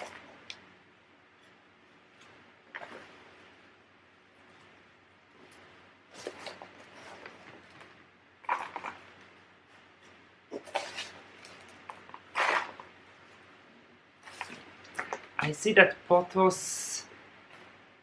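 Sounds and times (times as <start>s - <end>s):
hands rustling plants and soil: 1.8s - 13.6s, 14.2s - 15.6s.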